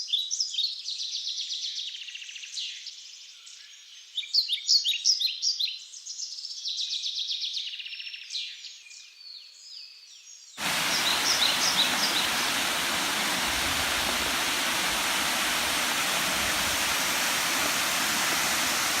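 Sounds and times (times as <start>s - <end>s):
bird chirps: 10.6s - 12.7s
waterfall rushing: 10.6s - 19.0s.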